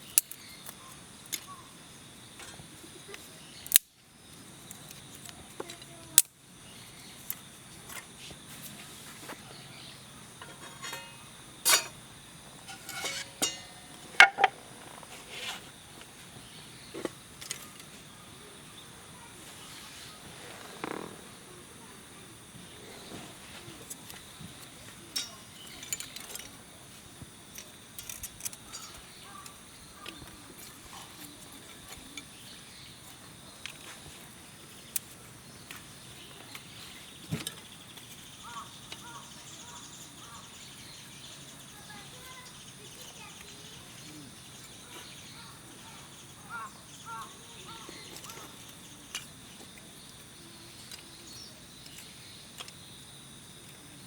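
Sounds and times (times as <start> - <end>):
faint steady hiss: 0.0 - 54.0
repeated bird calls: 35.6 - 49.3.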